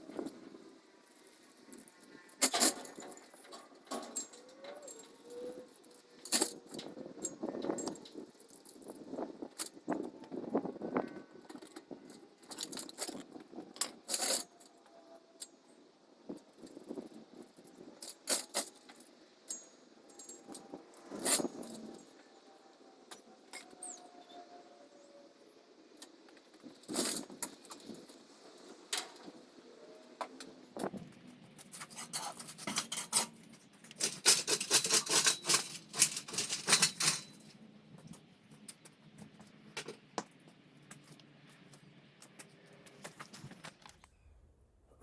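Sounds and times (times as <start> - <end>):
metal clanking and rattling: 31.9 - 37.5.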